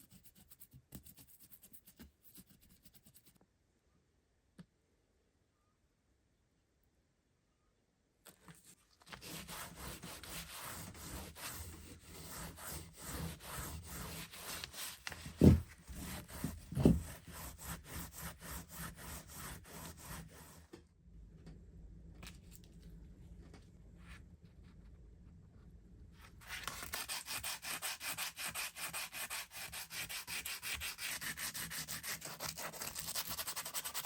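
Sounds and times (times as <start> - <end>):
faint hum: 3.5 - 8.3.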